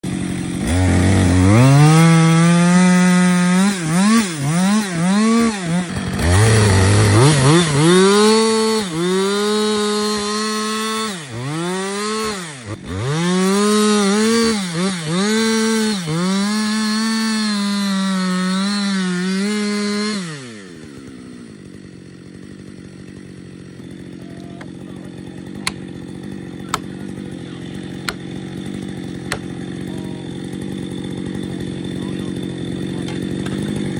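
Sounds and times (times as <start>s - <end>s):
chainsaw revving and cutting: 0.0s - 33.9s.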